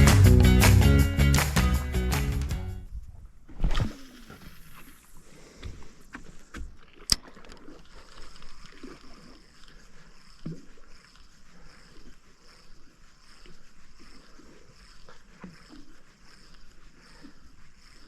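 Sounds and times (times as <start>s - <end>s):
low water noise: 2.8s - 18.0s.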